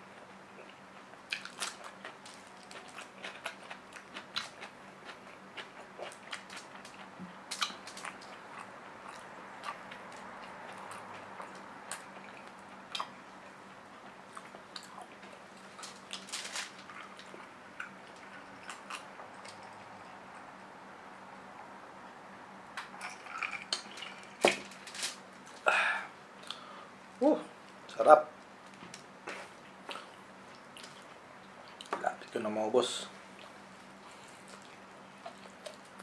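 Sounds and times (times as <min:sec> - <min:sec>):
faint steady hum: 0:00.0 - 0:36.0
chewing and lip smacks: 0:00.6 - 0:15.4, 0:29.9 - 0:32.0, 0:34.3 - 0:36.0.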